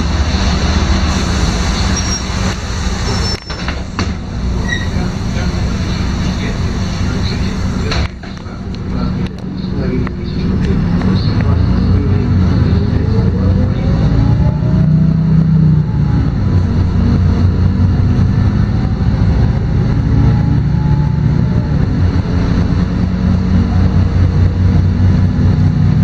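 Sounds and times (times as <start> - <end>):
bus engine hum: 0.0 - 26.0
road noise: 0.0 - 26.0
faint rising whine: 8.5 - 26.0.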